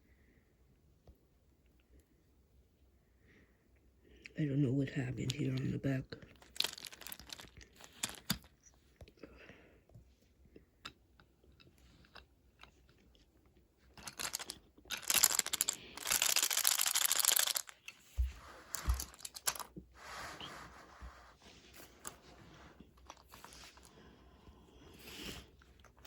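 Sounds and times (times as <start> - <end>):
packaging crinkling and rustling: 6.3 - 8.6, 13.9 - 19.8, 23.0 - 23.9.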